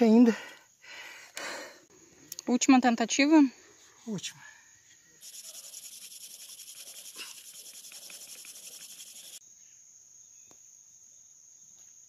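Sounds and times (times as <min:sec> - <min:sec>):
insect high-pitched trill: 0:04.0 - 0:11.4
insect fast-pulsing high buzz: 0:04.0 - 0:11.6.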